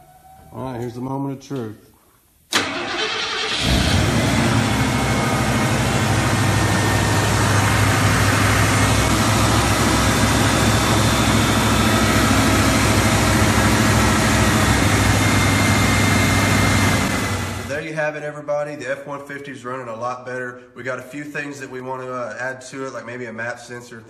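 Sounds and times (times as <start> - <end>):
pickup truck engine idling: 2.6 - 17.7.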